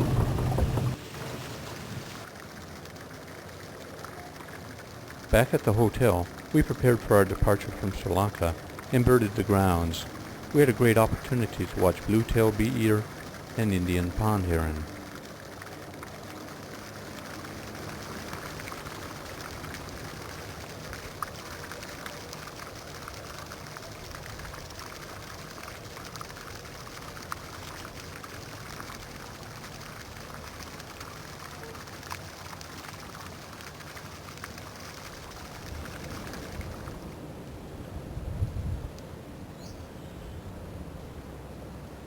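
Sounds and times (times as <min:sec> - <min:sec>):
water splashing: 0:00.0 - 0:37.2.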